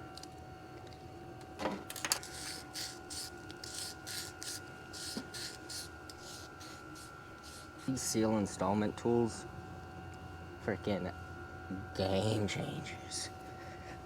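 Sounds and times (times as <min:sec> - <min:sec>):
faint steady hum: 0:00.0 - 0:14.0
rhythmic rubbing strokes: 0:02.2 - 0:08.2.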